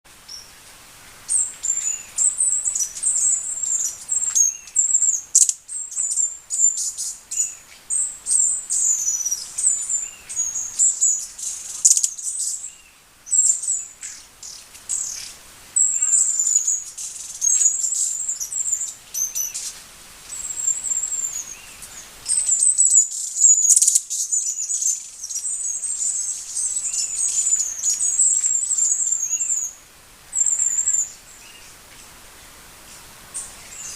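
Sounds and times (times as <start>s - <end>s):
hummingbird twittering chirps: 1.3s - 31.7s.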